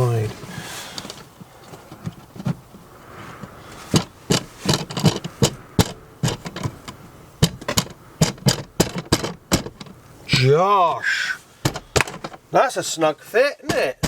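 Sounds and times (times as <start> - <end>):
quiet handling: 0.0 - 14.0
sharp irregular knocks: 3.9 - 10.0, 11.6 - 12.5.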